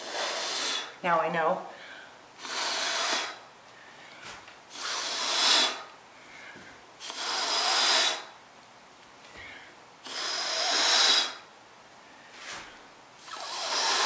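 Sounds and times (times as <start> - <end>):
breath puffs blown by mouth: 0.0 - 1.0, 2.4 - 3.4, 4.7 - 5.9, 7.0 - 8.3, 10.0 - 11.5, 12.4 - 14.0.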